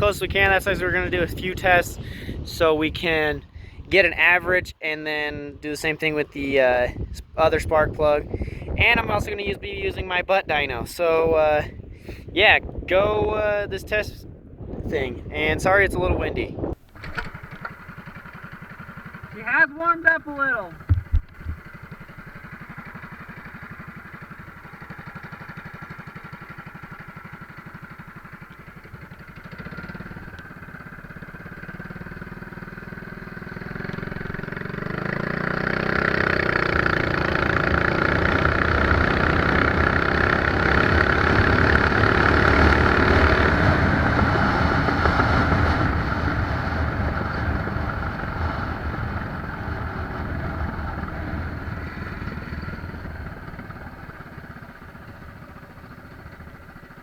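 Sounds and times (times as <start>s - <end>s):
mini bike engine revving: 16.8s - 57.0s.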